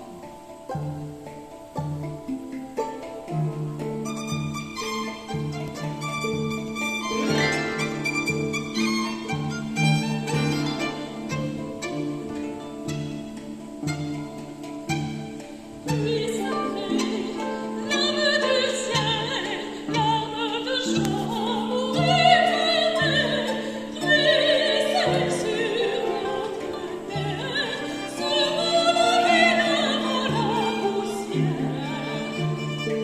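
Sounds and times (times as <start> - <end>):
plucked low harp notes: 0.0 - 15.8
soprano singing with vibrato: 4.1 - 33.0.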